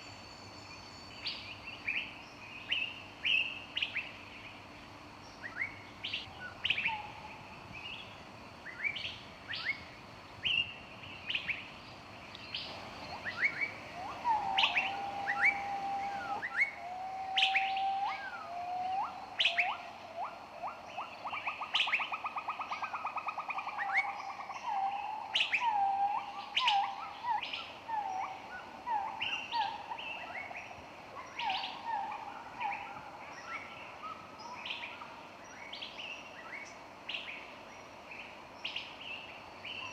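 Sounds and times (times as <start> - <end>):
songbirds chirping: 0.0 - 39.9
lower whistled bird call: 12.4 - 39.9
fast bird trill: 12.7 - 16.8.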